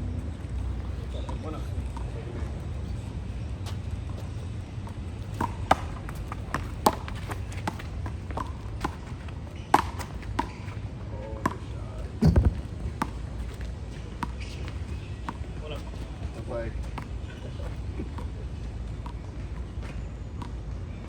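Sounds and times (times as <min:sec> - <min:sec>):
low rumble of wind or traffic: 0:00.0 - 0:21.0
heavy low thump: 0:12.2 - 0:13.0.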